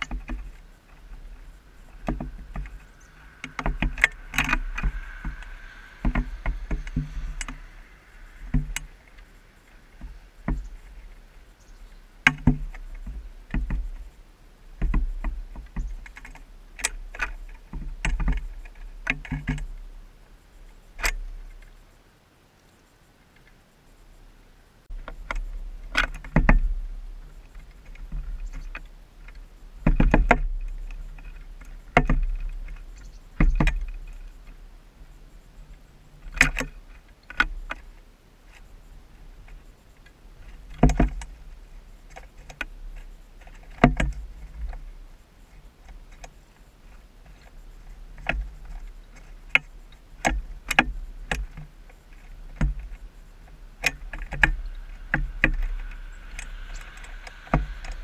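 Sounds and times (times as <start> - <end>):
woodpecker tapping: 0.0 - 19.9, 38.6 - 58.0
low steady rumble: 0.0 - 58.0.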